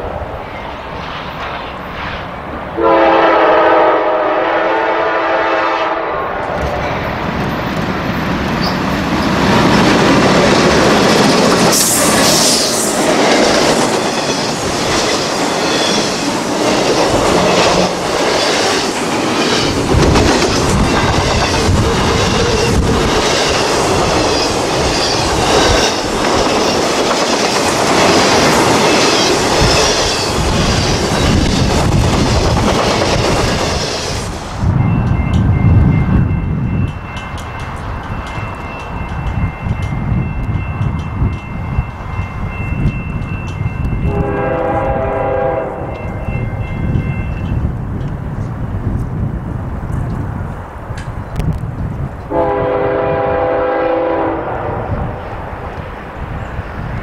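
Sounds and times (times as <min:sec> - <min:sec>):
freight train rumbling: 0:00.0 - 0:57.0
locomotive horn chord: 0:02.8 - 0:06.6, 0:44.1 - 0:46.0, 0:52.3 - 0:54.9.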